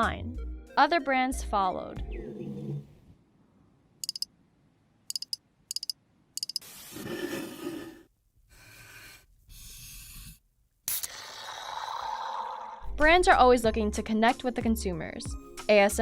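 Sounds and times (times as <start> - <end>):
sharp little clicks: 4.0 - 4.3, 5.1 - 6.6.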